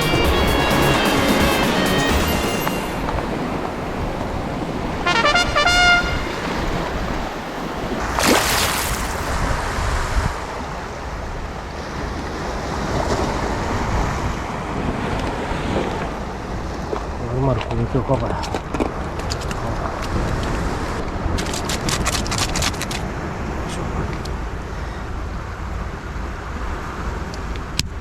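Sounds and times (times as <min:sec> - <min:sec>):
brief pitched notes: 0:00.0 - 0:03.6
wind on microphone: 0:00.0 - 0:28.0
waves washing on rocky shore: 0:01.0 - 0:25.7.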